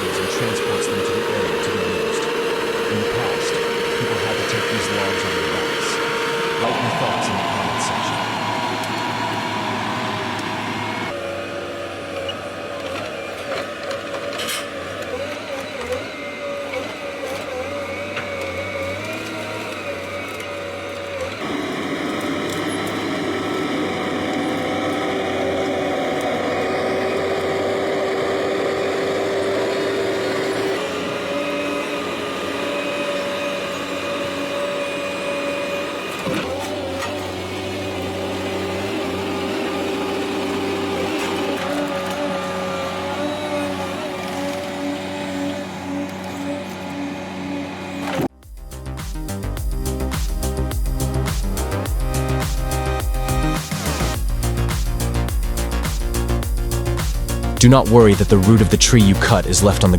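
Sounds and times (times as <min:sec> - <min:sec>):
heavy machinery engine drone: 0:00.0 - 0:14.7, 0:15.4 - 0:48.2.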